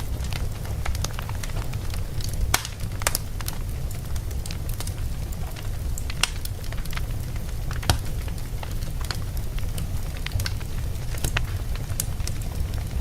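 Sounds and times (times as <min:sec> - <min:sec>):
logs crackling in fireplace: 0:00.0 - 0:13.0
low rumble of fire: 0:00.0 - 0:13.0
sharp pops and snaps: 0:00.2 - 0:03.6, 0:06.0 - 0:07.0, 0:07.7 - 0:12.4.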